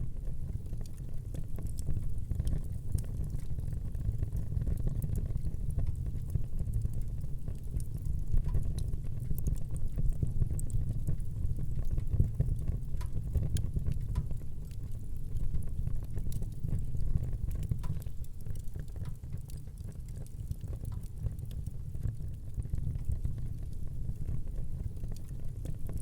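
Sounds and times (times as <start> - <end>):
fire crackles and pops: 0.0 - 26.0
low rumble of flames: 0.0 - 26.0.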